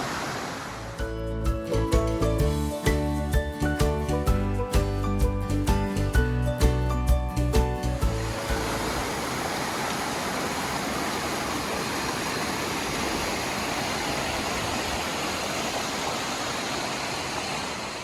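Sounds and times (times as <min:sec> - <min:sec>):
waterfall rushing over rock: 0:00.0 - 0:01.0, 0:08.0 - 0:18.0.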